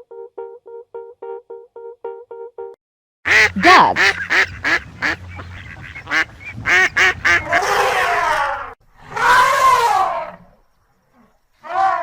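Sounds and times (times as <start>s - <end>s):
duck quacks: 3.3s - 8.0s.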